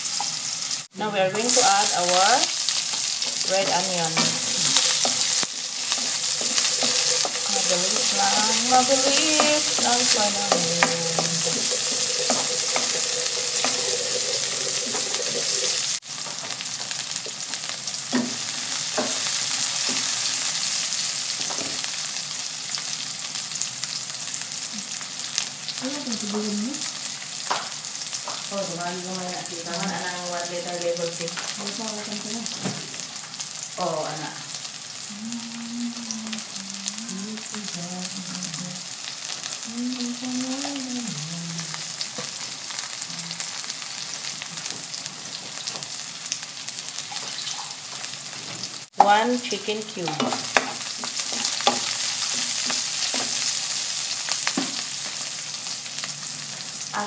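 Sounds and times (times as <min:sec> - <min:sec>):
onion and garlic sizzling in oil: 0:00.0 - 0:57.0
utensil scraping a metal wok: 0:01.6 - 0:16.0.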